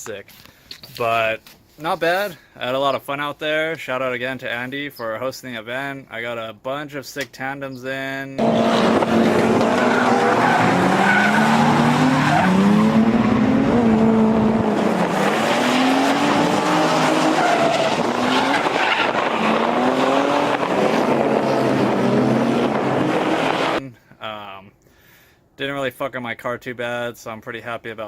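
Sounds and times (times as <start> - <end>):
tyres squealing on track: 8.4 - 13.3, 14.9 - 20.9
car engines revving: 8.4 - 23.8.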